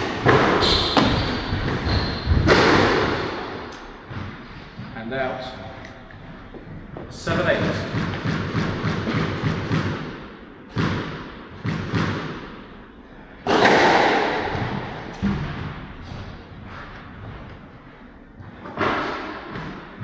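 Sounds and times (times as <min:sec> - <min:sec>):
squash ball hitting rackets and walls: 0:00.0 - 0:20.0.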